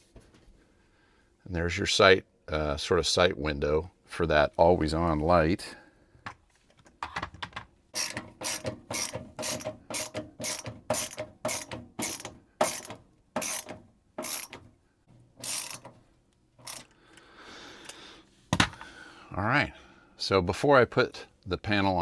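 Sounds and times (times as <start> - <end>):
ratcheting tool clicking: 8.0 - 14.6, 15.4 - 15.9, 16.6 - 17.0.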